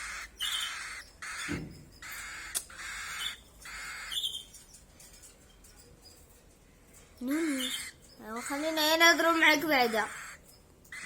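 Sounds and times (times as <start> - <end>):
chicks raspy begging calls: 0.0 - 4.4, 7.2 - 11.0.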